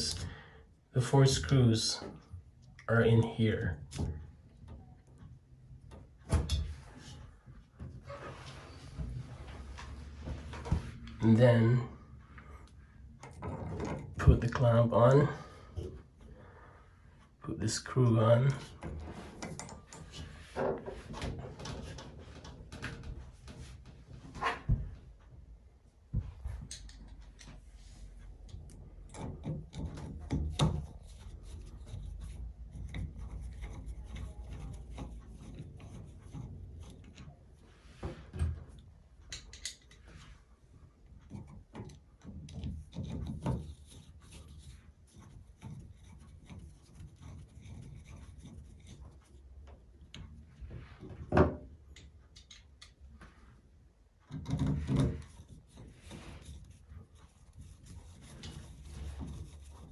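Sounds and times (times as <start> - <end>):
metal rubbing and scraping: 27.6 - 38.8, 41.1 - 51.3, 54.3 - 59.9
small metal clicks: 39.2 - 40.0, 51.9 - 53.0.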